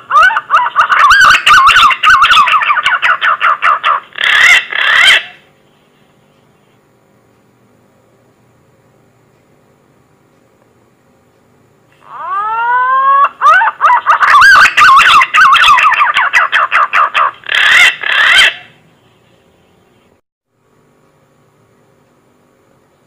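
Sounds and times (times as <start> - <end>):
pigeon whistling song: 0.1 - 5.4, 12.2 - 18.8.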